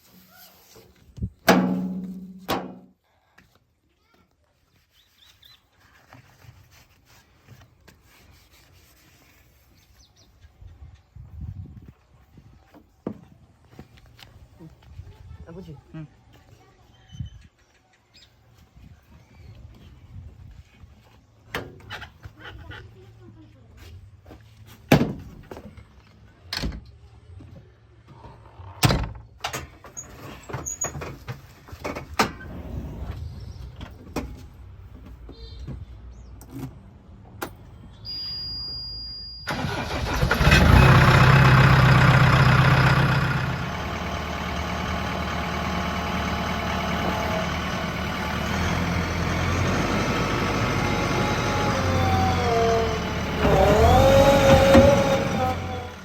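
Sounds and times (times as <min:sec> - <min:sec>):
diesel engine starting and running: 0:32.1 - 0:34.8, 0:39.4 - 0:56.0
faint engine hum: 0:32.4 - 0:37.8, 0:39.5 - 0:56.0
short high beep: 0:38.1 - 0:39.5.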